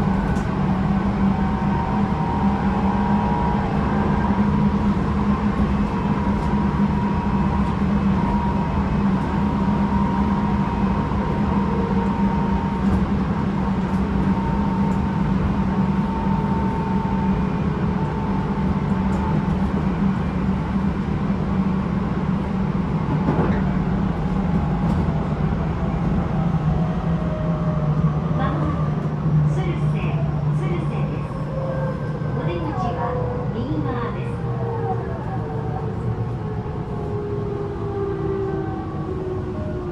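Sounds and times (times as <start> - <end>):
train motor hum: 0.0 - 27.7.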